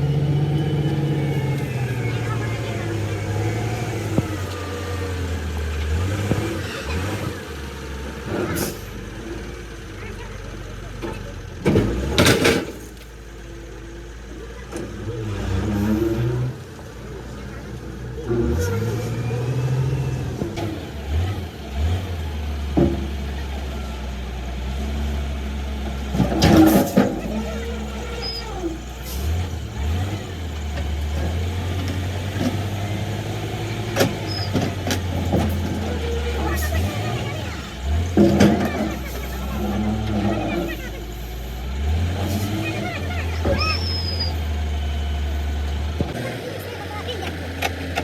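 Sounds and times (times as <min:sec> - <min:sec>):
engine running: 0:00.0 - 0:48.0.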